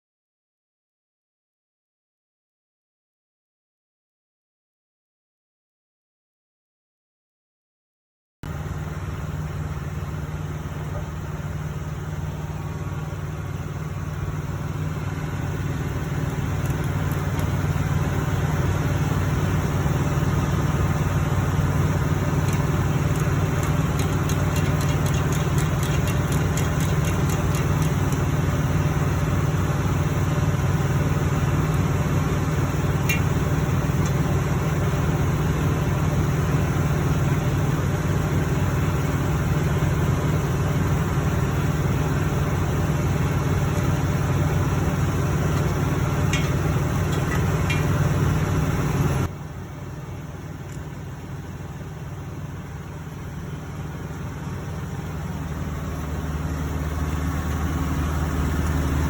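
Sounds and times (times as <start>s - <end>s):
truck engine idling: 8.5s - 59.0s
faint rapid ticks: 22.4s - 28.3s.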